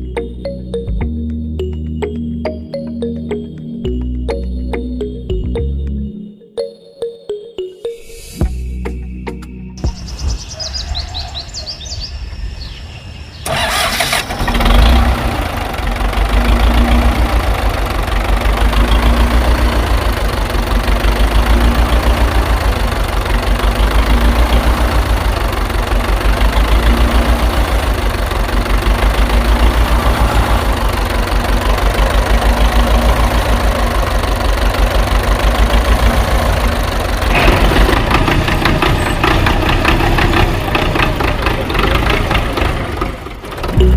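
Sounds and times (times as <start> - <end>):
engine chugging: 13.4 - 43.9.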